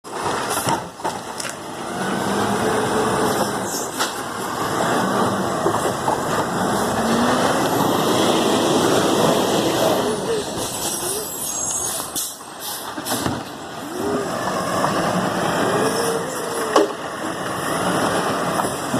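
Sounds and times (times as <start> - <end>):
garbage truck engine running: 0.1 - 11.4, 12.0 - 18.9.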